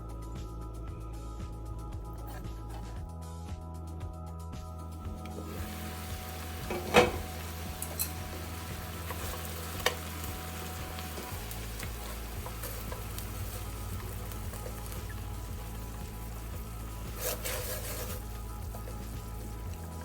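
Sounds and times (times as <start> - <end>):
chicken wings sizzling in a pan: 5.1 - 20.0
utensil clacking against pan: 6.6 - 8.4.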